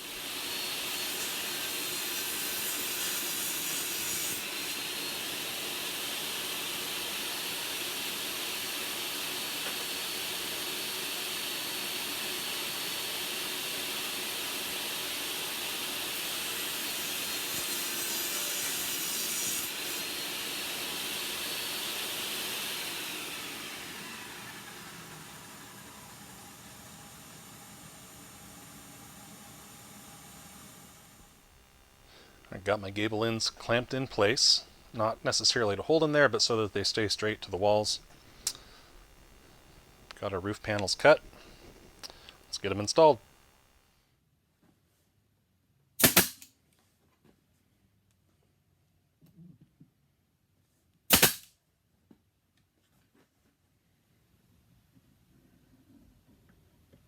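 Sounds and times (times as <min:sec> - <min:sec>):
table saw cutting wood: 0:00.0 - 0:43.4.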